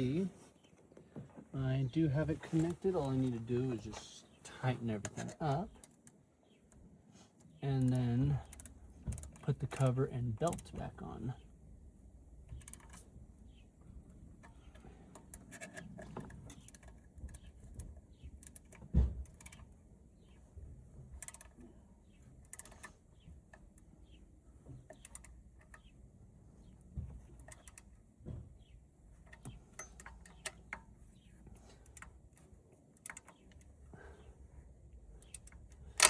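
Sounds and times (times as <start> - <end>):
metallic clicks of hand tools: 29.3 - 30.9.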